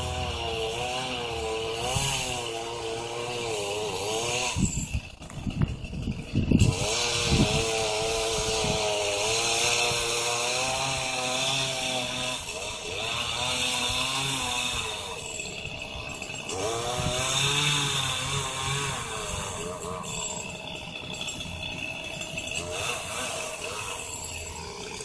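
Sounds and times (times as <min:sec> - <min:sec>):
chainsaw cutting wood: 0:00.0 - 0:25.0.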